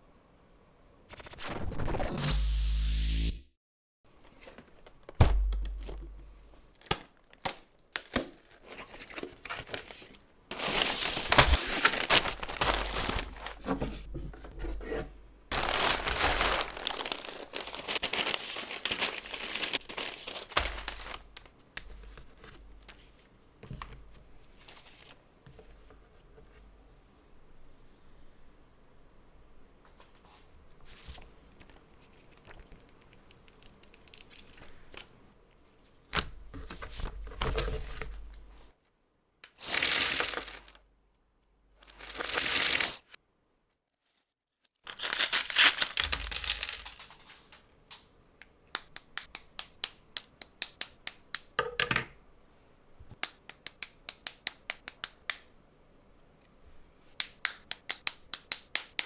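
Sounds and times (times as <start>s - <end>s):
packaging tearing and crinkling: 6.8s - 13.7s, 15.5s - 21.5s, 39.6s - 40.8s, 41.9s - 43.0s, 44.9s - 48.0s
plastic pieces clicking: 45.0s - 48.1s.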